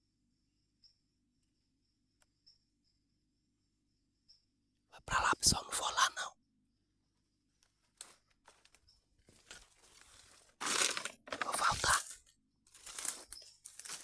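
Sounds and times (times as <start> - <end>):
footsteps crunching dry leaves: 8.0 - 14.0.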